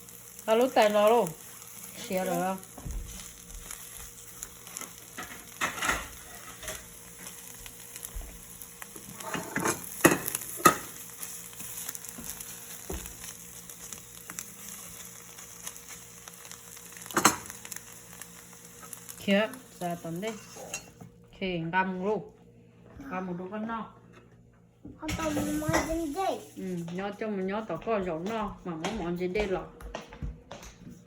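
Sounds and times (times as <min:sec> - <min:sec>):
food sizzling in a pan: 0:00.0 - 0:21.2, 0:25.0 - 0:27.5.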